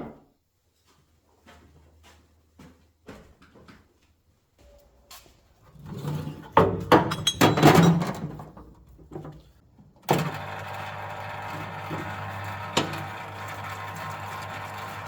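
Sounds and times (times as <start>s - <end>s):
electric pump humming and hissing: 10.1s - 15.0s.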